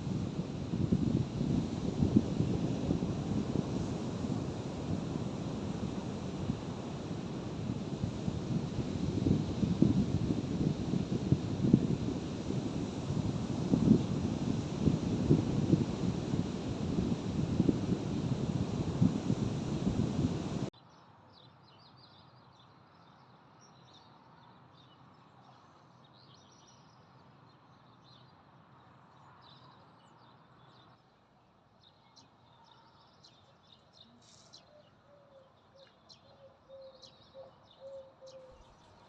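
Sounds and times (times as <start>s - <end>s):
background hiss: 0.0s - 20.7s
faint bird chirps: 31.8s - 39.0s.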